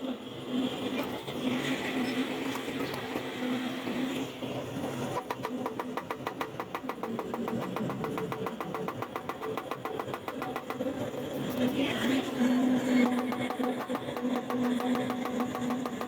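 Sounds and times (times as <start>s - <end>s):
steady hum: 3.0s - 16.0s
machine ticking rapidly: 5.2s - 11.8s, 12.8s - 16.0s.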